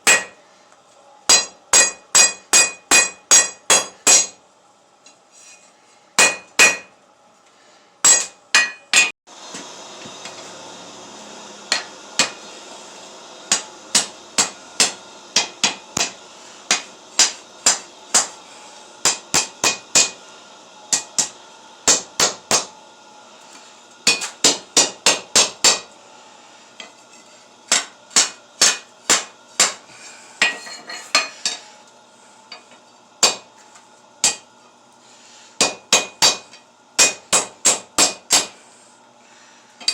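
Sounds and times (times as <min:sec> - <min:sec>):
hammer striking steel on anvil: 0:00.0 - 0:00.4, 0:01.3 - 0:04.4, 0:06.2 - 0:07.0, 0:08.0 - 0:09.2, 0:11.7 - 0:12.4, 0:13.5 - 0:18.4, 0:19.0 - 0:20.2, 0:20.9 - 0:22.7, 0:24.0 - 0:25.9, 0:27.7 - 0:29.8, 0:32.5 - 0:33.5, 0:34.2 - 0:34.5, 0:35.6 - 0:38.6.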